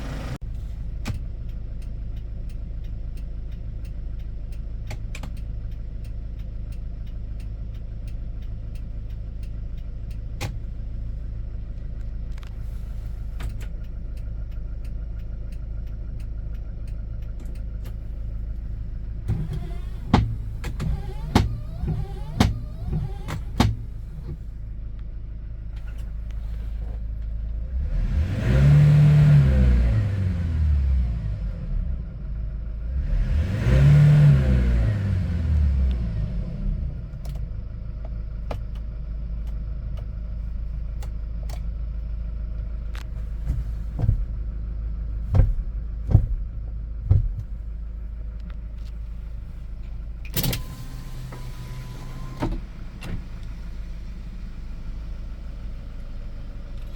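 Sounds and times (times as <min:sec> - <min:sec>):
diesel truck engine idling and revving: 0:00.0 - 0:56.9
sharp clicks: 0:01.0 - 0:10.9.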